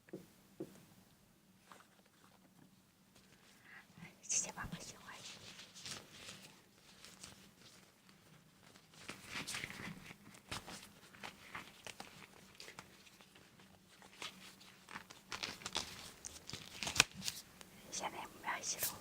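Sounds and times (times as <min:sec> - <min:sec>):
material crinkling: 0:05.3 - 0:17.7.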